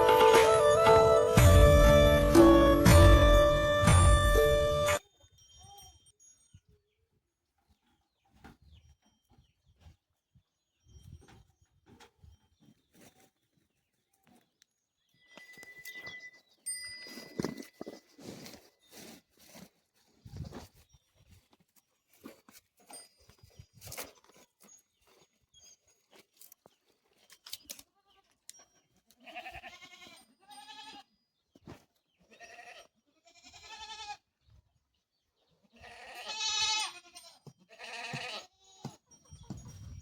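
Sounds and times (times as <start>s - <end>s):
goats bleating: 29.2s - 31.0s, 35.7s - 38.8s.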